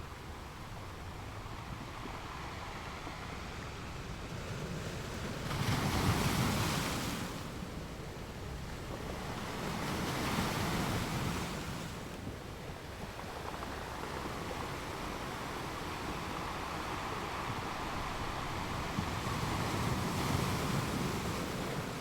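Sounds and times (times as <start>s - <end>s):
ocean surf waves: 13.8s - 22.0s.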